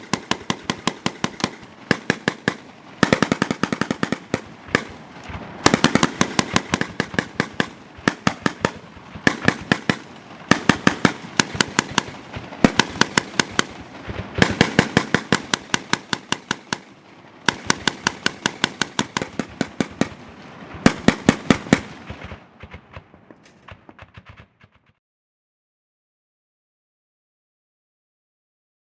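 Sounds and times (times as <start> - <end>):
grenade launcher bursts: 0.0 - 16.9, 17.5 - 23.9.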